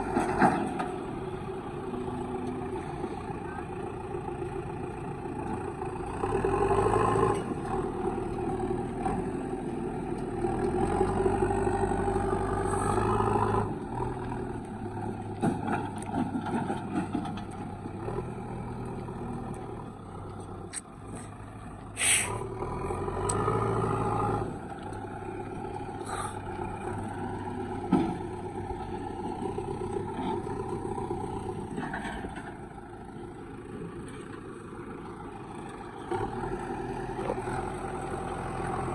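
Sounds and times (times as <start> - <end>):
diesel engine revving: 0.0 - 38.9
short sharp hiss: 22.0 - 22.4.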